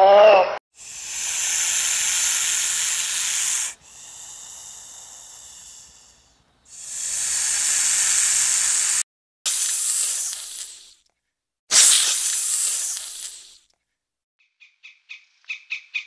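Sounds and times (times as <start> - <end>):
snake hissing: 0.7 - 11.0, 11.7 - 13.6.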